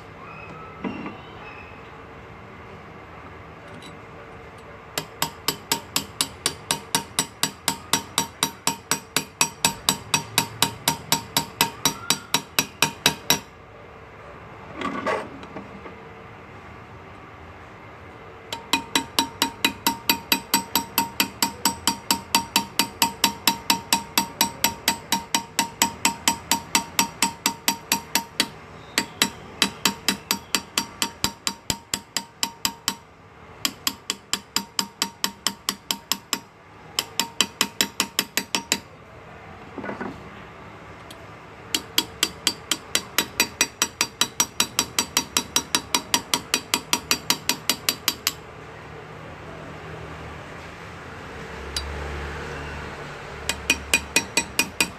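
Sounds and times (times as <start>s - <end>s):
hammer tapping graver into metal: 5.0s - 13.5s, 18.5s - 38.9s, 41.7s - 48.4s, 53.4s - 54.9s.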